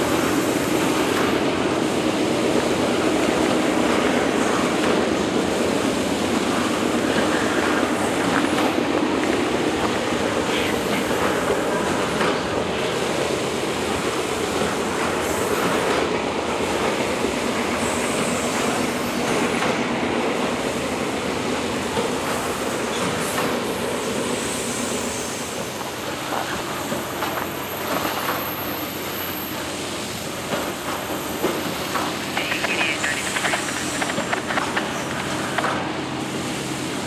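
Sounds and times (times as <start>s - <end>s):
train wheels rumbling on rail: 0.0s - 37.0s
scattered clicks: 32.3s - 35.8s.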